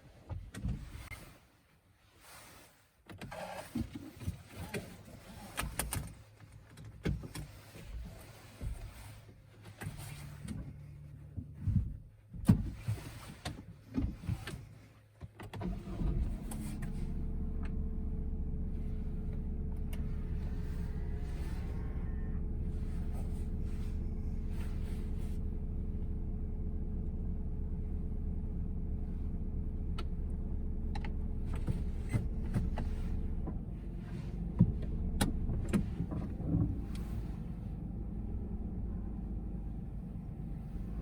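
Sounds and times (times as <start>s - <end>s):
clicks and knocks in car cabin: 0.2s - 1.0s, 3.0s - 17.0s, 30.9s - 37.2s
car engine starting and idling: 15.4s - 41.0s.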